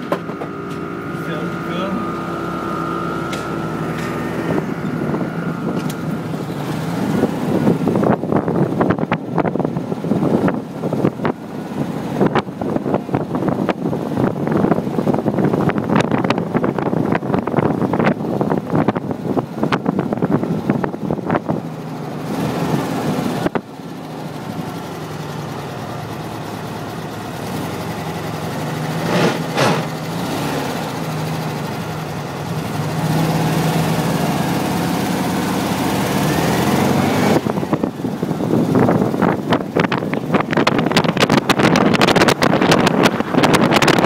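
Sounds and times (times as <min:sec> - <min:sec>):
car engine running: 0:00.0 - 0:44.0
wind buffeting microphone: 0:02.0 - 0:21.7, 0:36.5 - 0:44.0.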